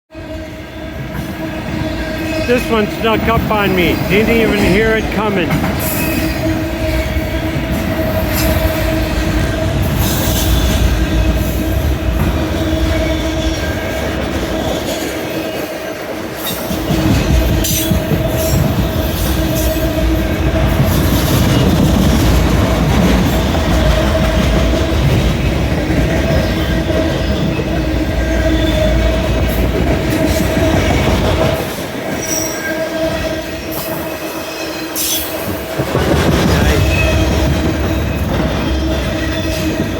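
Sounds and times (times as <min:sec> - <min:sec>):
heavy train rumble: 0:00.1 - 0:39.9
train wheels clacking on rails: 0:00.2 - 0:39.9
train wheel squeal: 0:05.8 - 0:22.3, 0:26.3 - 0:36.0, 0:36.7 - 0:39.9.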